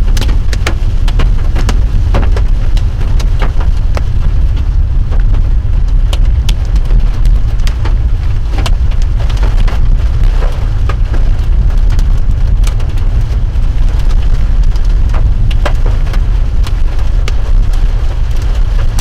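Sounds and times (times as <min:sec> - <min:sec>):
rain tapping on a car: 0:00.0 - 0:19.0
vehicle driving rumble: 0:00.0 - 0:19.0.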